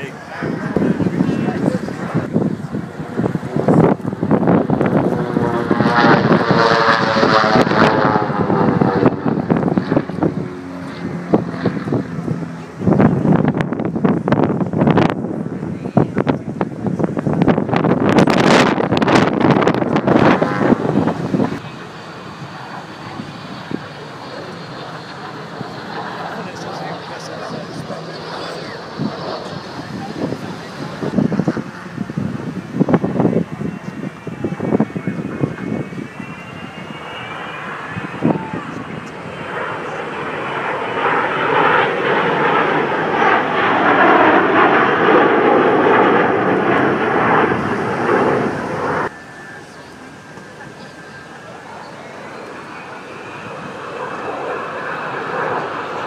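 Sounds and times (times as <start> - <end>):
wind buffeting on microphone: 0.0 - 21.8, 22.4 - 49.1
aircraft noise: 0.0 - 56.0.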